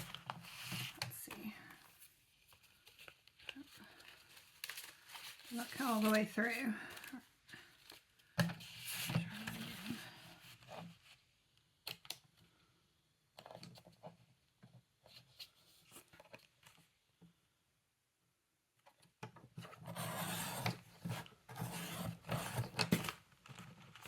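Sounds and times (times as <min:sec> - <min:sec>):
paper rustling: 0:00.0 - 0:11.2
paper cutter blade cutting paper: 0:19.8 - 0:23.0.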